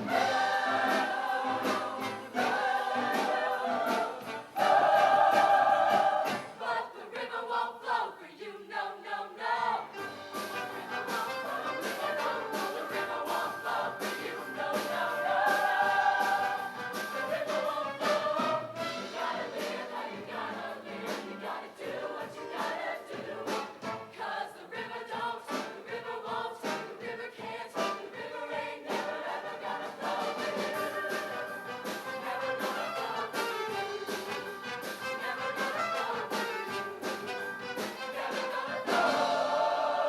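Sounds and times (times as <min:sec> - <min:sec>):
percussive beat: 0:00.0 - 0:06.6, 0:28.9 - 0:39.6
choir singing in harmony: 0:00.0 - 0:40.0
live band playing: 0:10.0 - 0:15.1, 0:16.3 - 0:19.3, 0:30.7 - 0:39.1.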